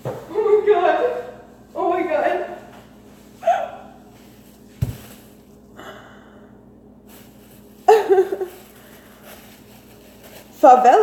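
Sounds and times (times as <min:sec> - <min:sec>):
faint breath: 0:05.7 - 0:06.6.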